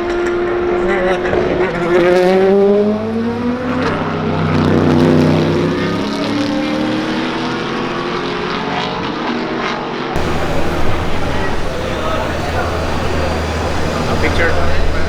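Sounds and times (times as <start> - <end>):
race car engine accelerating: 10.2 - 15.0.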